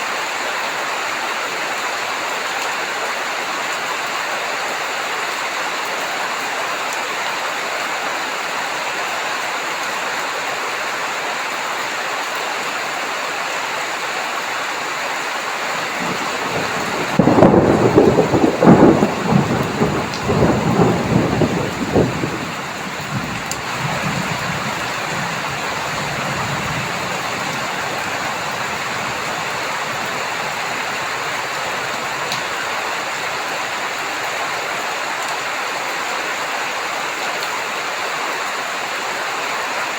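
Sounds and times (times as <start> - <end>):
rain falling: 0.0 - 39.9
thunder clap and rumble: 15.8 - 32.6.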